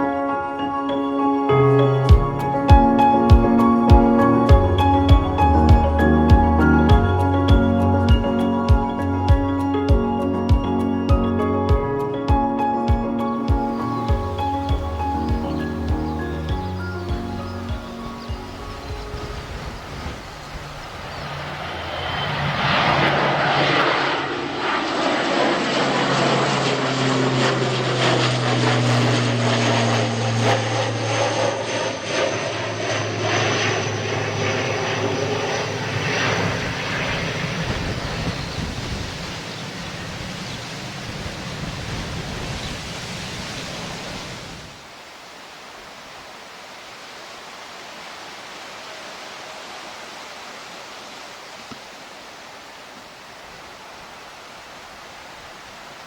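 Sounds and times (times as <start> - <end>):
aircraft engines passing: 0.0 - 44.9
faint steady hiss: 38.6 - 56.0.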